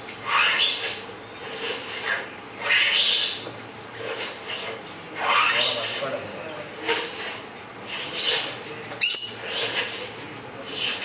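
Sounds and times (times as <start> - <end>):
lovebirds screeching: 8.0 - 9.9.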